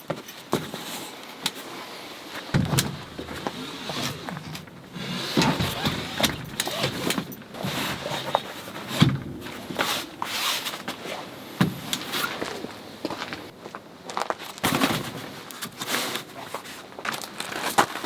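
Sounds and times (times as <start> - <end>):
knocks and clicks of handling: 2.5 - 10.3.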